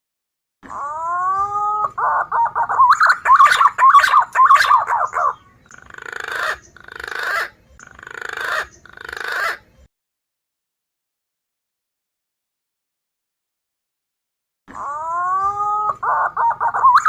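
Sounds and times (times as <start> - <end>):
harsh raspy bird notes: 0.7 - 9.7, 14.7 - 17.0
pigeon whistling calls: 1.0 - 9.6, 14.9 - 17.0.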